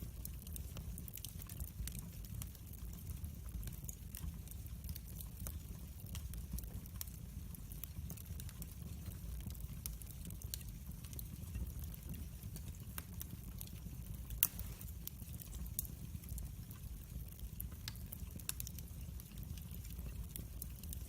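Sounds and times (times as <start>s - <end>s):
wood fire crackling: 0.0s - 21.0s
fire pops: 4.9s - 21.0s.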